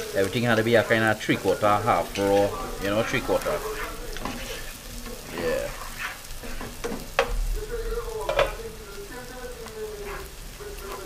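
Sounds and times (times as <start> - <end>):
vegetables sizzling in oil: 0.0 - 11.0
wooden spoon stirring: 0.0 - 11.0
spoon knocking against pot: 6.4 - 7.4, 8.2 - 8.6.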